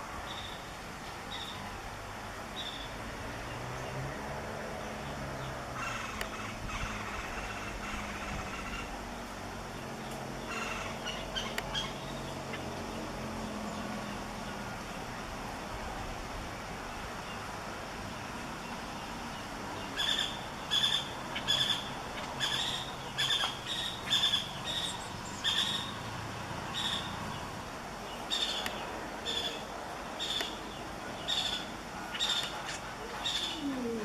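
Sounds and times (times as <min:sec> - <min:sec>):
background hiss: 0:00.0 - 0:34.0
bird calling with high notes: 0:26.7 - 0:27.2.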